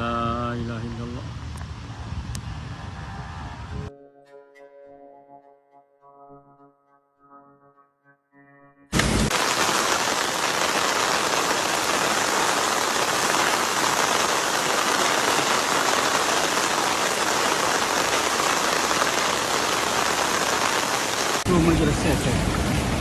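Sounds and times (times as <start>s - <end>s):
heavy rain falling: 9.0s - 23.0s.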